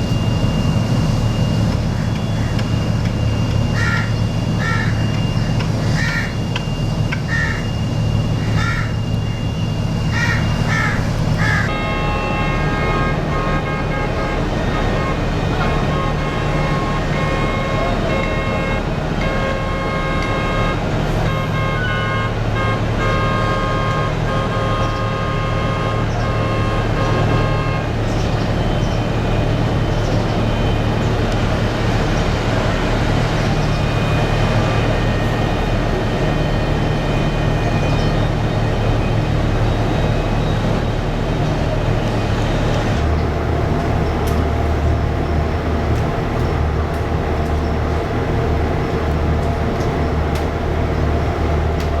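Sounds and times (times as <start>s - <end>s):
deep drone: 0.0s - 52.0s
machinery high whine: 0.0s - 52.0s
machinery low hum: 0.0s - 52.0s
machinery rumble: 0.0s - 52.0s.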